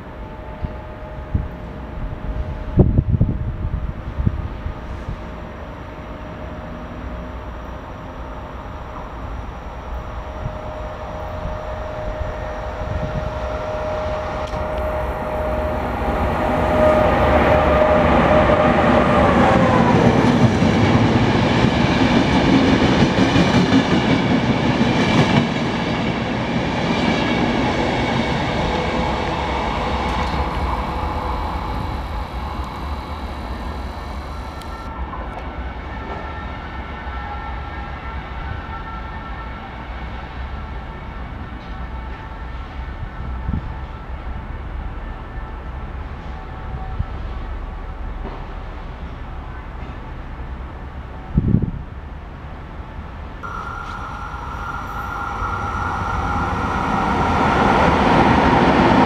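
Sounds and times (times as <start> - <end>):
electric locomotive whine: 0.0 - 59.0
train wheels rumbling and clattering: 9.9 - 34.0, 45.7 - 59.0.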